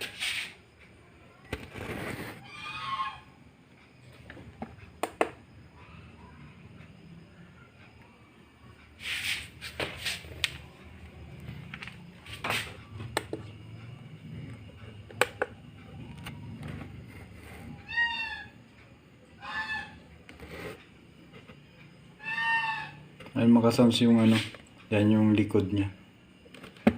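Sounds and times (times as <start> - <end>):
pitched animal cries: 2.4 - 3.4, 17.7 - 18.6, 19.4 - 20.1, 22.2 - 23.1
sharp knocks and clicks: 4.6 - 5.4.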